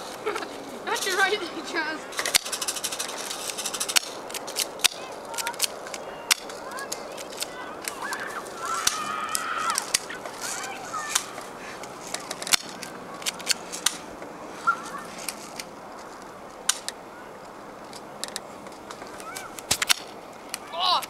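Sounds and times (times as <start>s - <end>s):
high-pitched calls: 14.5s - 15.2s.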